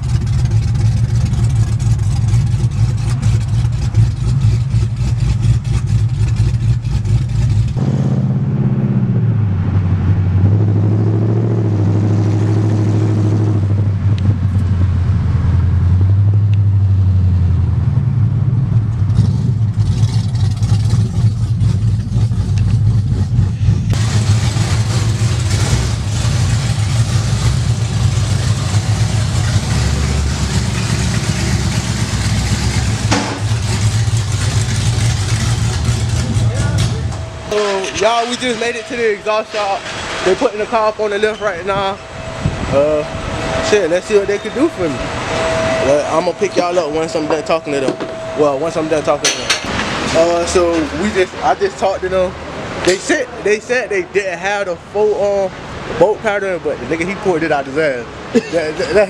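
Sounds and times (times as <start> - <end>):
car exhaust rumbling while driving: 0.0 - 54.7
rushing noise: 23.5 - 53.9.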